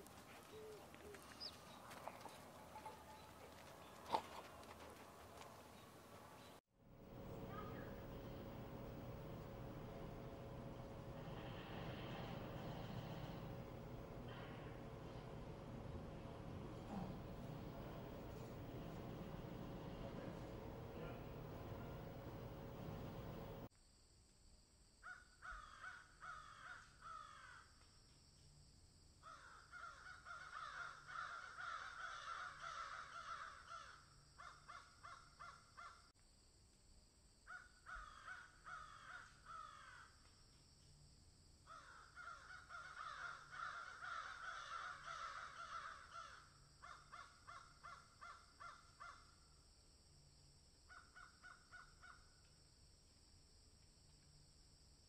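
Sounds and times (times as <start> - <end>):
faint bird calls: 0.0 - 5.0, 7.2 - 23.7.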